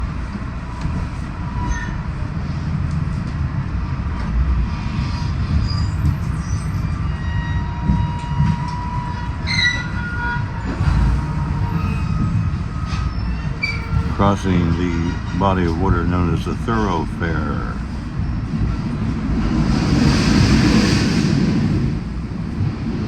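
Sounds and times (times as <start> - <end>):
train rumbling on rails: 0.0 - 23.0
high wheel squeals: 5.6 - 15.1.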